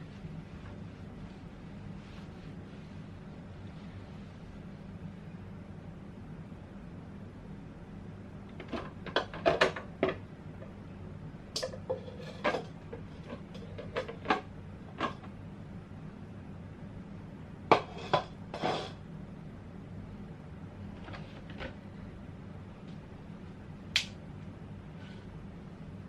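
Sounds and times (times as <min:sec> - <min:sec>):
containers clacking and knocking: 0:11.6 - 0:15.3.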